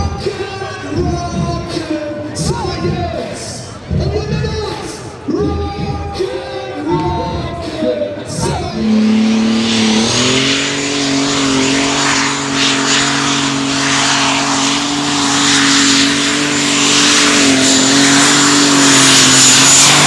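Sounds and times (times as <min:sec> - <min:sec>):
high thin whine: 0:08.4 - 0:20.0
tractor engine running loud: 0:08.4 - 0:20.0.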